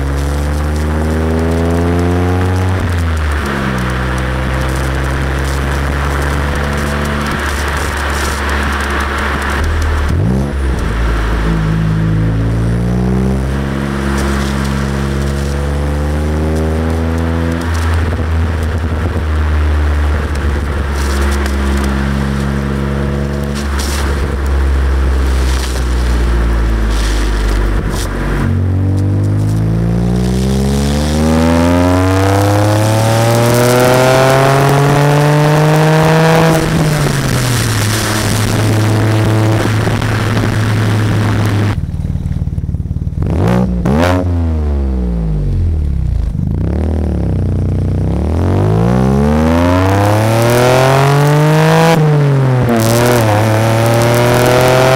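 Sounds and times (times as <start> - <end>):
wind rumble on microphone: 0.0 - 42.0
car engine revving through exhaust: 0.0 - 54.9.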